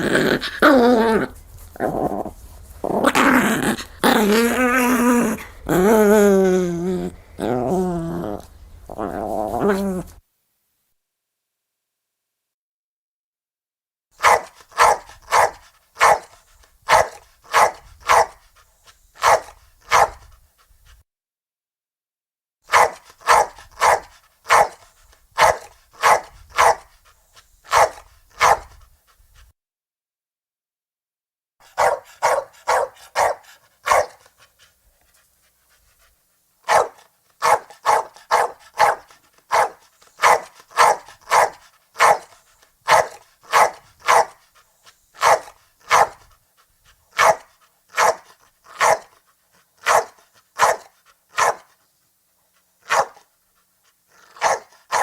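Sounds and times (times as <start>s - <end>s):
small dog yapping: 14.2s - 16.3s, 16.9s - 18.3s, 19.2s - 20.2s, 22.7s - 24.8s, 25.4s - 26.8s, 27.7s - 28.7s, 31.8s - 34.2s, 36.7s - 42.2s, 45.2s - 46.2s, 48.0s - 49.0s, 54.4s - 55.0s.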